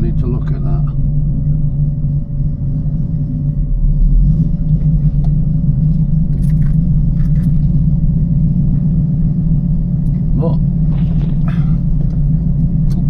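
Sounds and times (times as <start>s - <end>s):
car engine deep burble: 0.0s - 13.0s.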